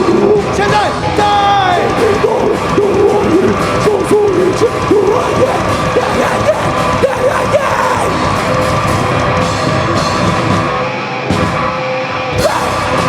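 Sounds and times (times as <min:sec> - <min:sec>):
distorted guitars: 0:00.0 - 0:13.0
heavy rock band playing live: 0:00.0 - 0:13.0
person yelling vocals: 0:00.3 - 0:08.3, 0:12.4 - 0:13.0.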